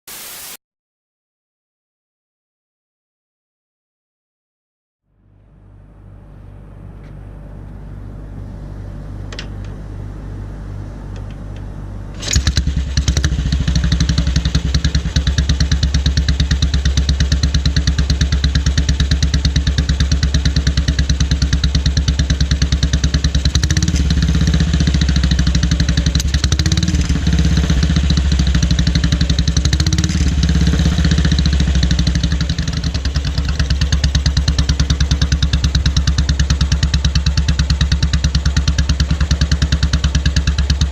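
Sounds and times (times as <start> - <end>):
motorcycle engine idling: 12.2 - 40.9.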